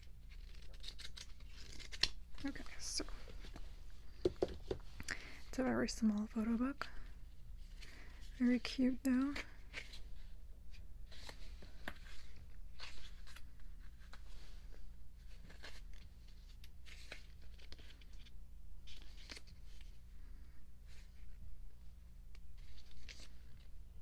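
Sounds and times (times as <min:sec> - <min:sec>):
steady low hum: 0:00.0 - 0:24.0
page turns: 0:10.7 - 0:18.3, 0:22.6 - 0:23.7.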